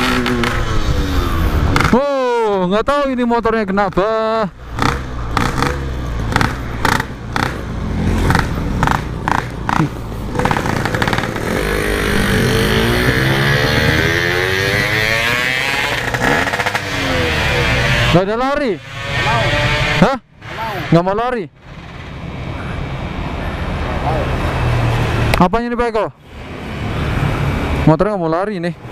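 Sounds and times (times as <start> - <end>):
two-stroke motorcycle engine revving: 0.0 - 2.3, 3.9 - 21.0.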